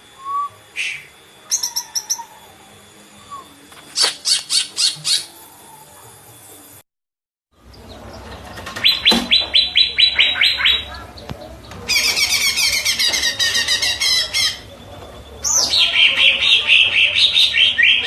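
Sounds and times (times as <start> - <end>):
bird singing falling notes: 7.7 - 14.8.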